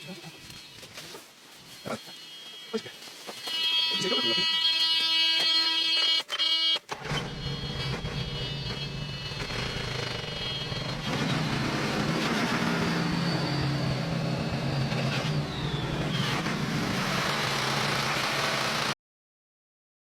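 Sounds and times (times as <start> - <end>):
diesel truck engine running: 6.9 - 18.9.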